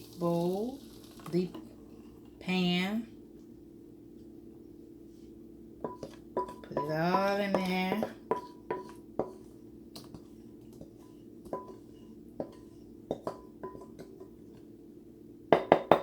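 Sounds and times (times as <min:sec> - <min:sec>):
faint steady hum: 0:00.0 - 0:16.0
utensil scraping a bowl: 0:05.8 - 0:14.0.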